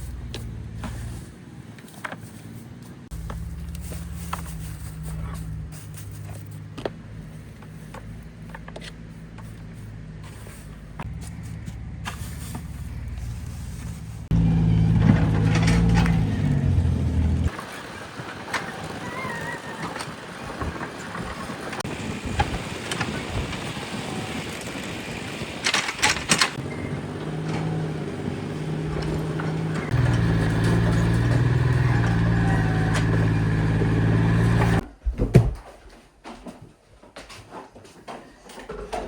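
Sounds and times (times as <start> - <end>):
engine running: 2.8 - 18.7, 20.6 - 34.8.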